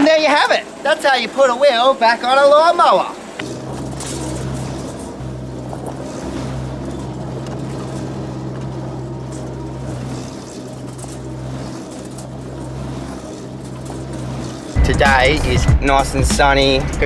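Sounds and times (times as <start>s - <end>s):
vehicle engine running: 3.4s - 17.0s.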